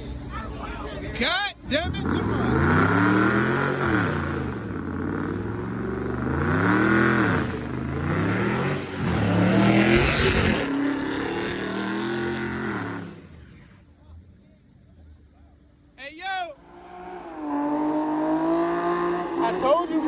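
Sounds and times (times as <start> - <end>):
car engine revving hard: 1.7 - 13.6, 16.6 - 20.0.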